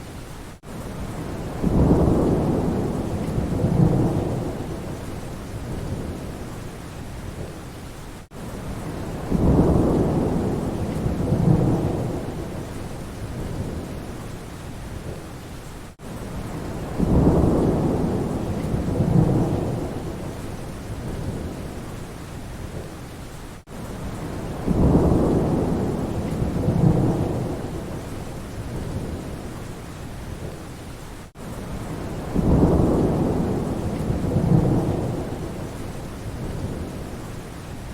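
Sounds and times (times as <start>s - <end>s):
steady rain: 0.0s - 37.9s
thunder rumbling: 1.0s - 6.6s, 8.7s - 14.2s, 16.4s - 21.8s, 24.0s - 29.5s, 31.7s - 37.3s.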